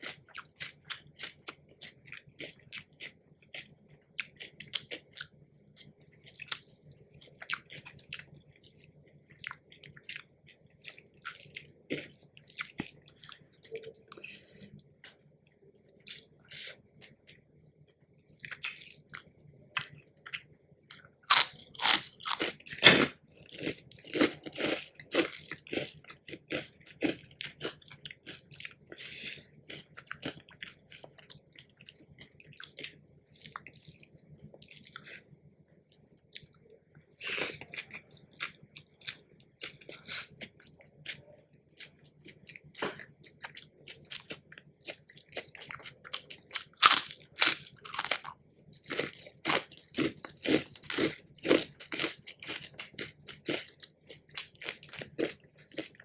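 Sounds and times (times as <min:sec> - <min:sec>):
crunchy bites and chewing: 0:20.9 - 0:33.6, 0:42.3 - 0:56.0.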